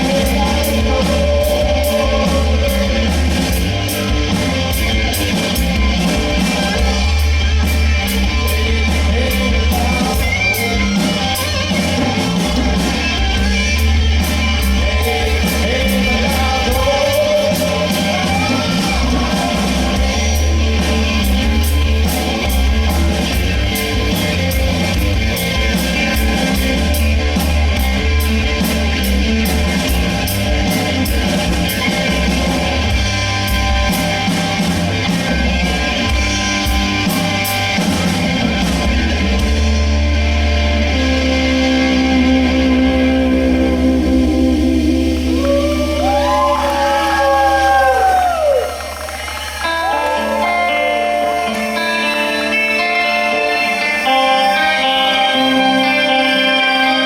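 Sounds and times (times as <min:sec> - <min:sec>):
person singing: 0:00.0 - 0:03.6, 0:08.3 - 0:11.1, 0:14.6 - 0:22.2, 0:40.9 - 0:48.4, 0:49.7 - 0:57.0
rock band playing: 0:00.0 - 0:57.0.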